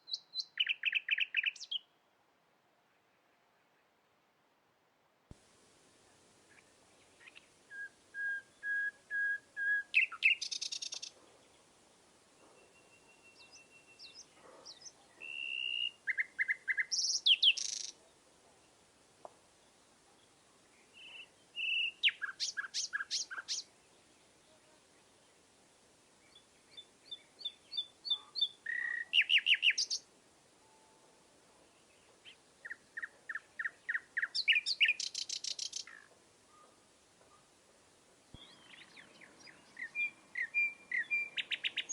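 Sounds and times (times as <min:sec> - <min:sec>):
songbird whistling and trilling: 0:00.0 - 0:01.9, 0:07.2 - 0:11.1, 0:12.6 - 0:17.9, 0:21.0 - 0:23.6, 0:26.8 - 0:30.0, 0:32.2 - 0:36.7, 0:38.4 - 0:41.9.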